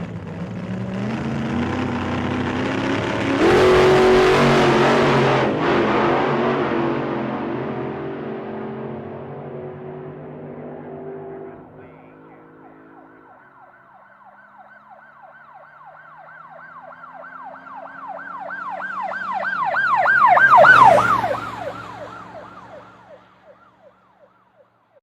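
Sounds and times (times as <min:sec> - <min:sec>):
vehicle passing: 0:00.0 - 0:24.5
siren in fast yelp mode: 0:03.4 - 0:05.3, 0:11.8 - 0:24.7.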